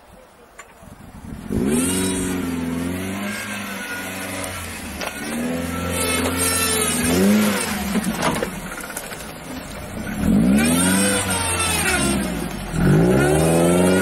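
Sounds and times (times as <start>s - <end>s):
engine revving hard: 1.4s - 8.1s, 10.1s - 14.0s.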